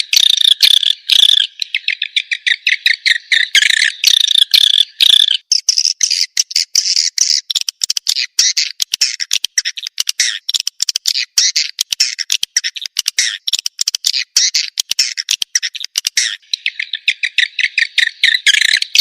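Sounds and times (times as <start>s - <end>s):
swiftlet twittering chirps: 0.0s - 7.6s, 11.1s - 19.0s.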